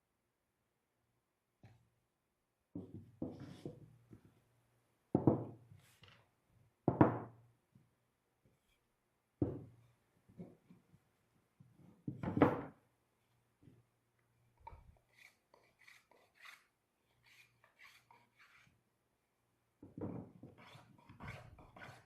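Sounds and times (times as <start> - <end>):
wooden knocks and thuds: 5.1 - 5.6, 6.9 - 7.3, 19.8 - 20.5.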